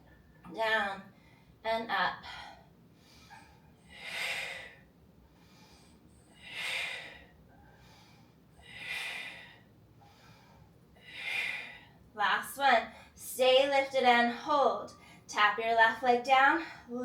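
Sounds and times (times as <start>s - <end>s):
woman breathing: 1.1s - 1.6s, 2.2s - 12.2s, 12.8s - 13.3s, 14.3s - 15.3s, 16.5s - 17.0s.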